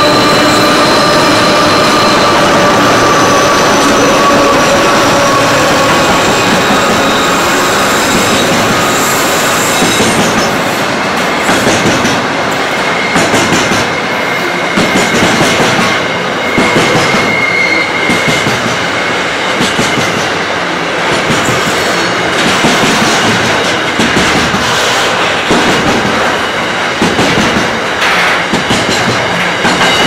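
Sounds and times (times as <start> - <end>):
high wheel squeal: 0.0 - 10.7, 12.6 - 19.5
freight train wheels rumbling: 0.0 - 30.0.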